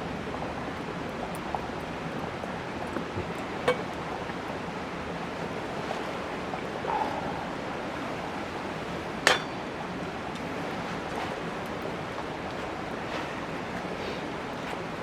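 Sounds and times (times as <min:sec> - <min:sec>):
steady rushing outdoor noise: 0:00.5 - 0:15.0.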